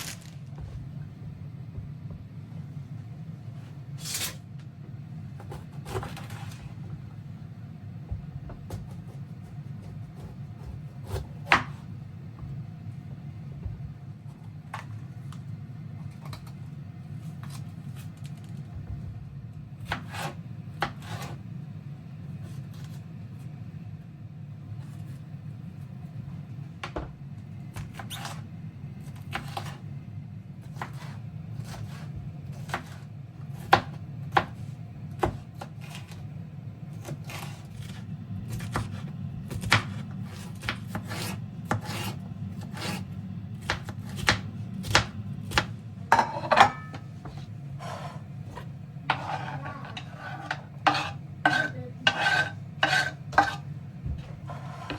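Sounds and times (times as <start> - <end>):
scraping on wooden board: 47.2 - 54.9.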